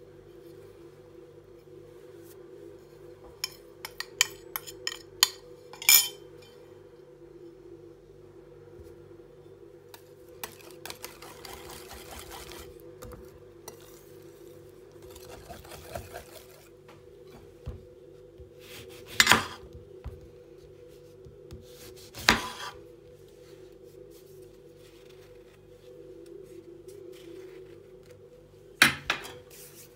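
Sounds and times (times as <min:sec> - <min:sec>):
steady hum: 0:00.0 - 0:29.9
light clinks of dishes: 0:03.4 - 0:06.6
scraping or rubbing: 0:10.5 - 0:12.8, 0:13.7 - 0:16.8.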